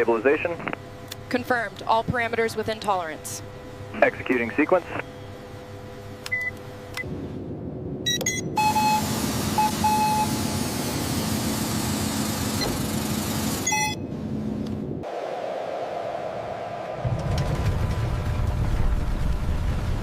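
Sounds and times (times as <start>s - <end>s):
low machine hum: 0.0s - 15.0s
short electronic beeps: 8.1s - 10.4s, 13.6s - 14.0s.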